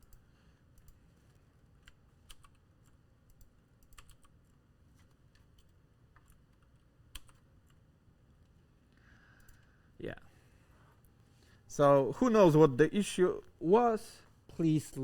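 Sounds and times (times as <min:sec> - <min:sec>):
low background hum: 0:00.0 - 0:15.0
keyboard typing: 0:00.8 - 0:07.8.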